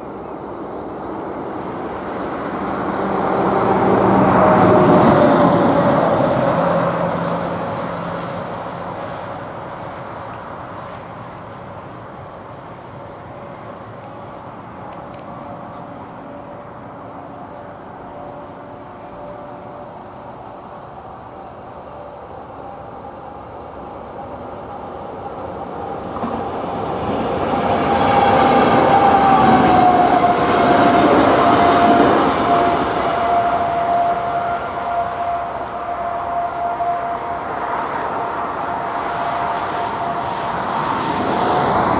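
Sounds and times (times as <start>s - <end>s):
passenger train rumbling past: 0.0s - 41.9s
crossing warning bell ringing: 12.7s - 41.9s.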